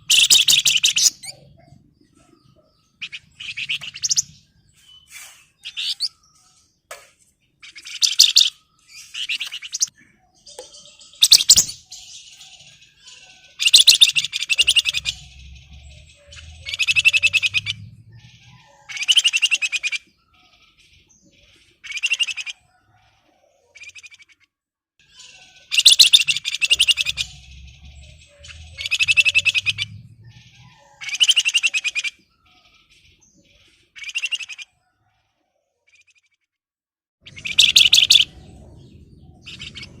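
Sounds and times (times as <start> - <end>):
bird singing chattering phrases: 0.0 - 34.8, 37.2 - 40.0
low rumble: 15.0 - 18.5, 27.1 - 30.6, 38.2 - 40.0.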